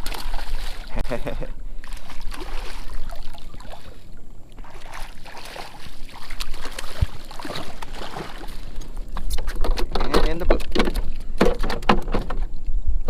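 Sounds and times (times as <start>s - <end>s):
water splashing around kayak: 0.0s - 11.7s
wind buffeting microphone: 0.0s - 13.0s.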